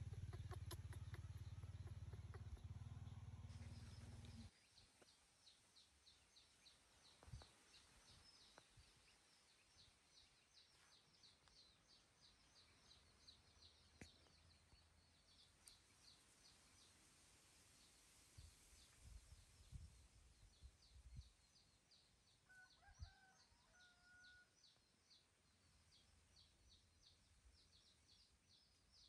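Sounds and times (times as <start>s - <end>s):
low rumble: 0.0s - 4.5s
bird chirping: 0.0s - 17.1s.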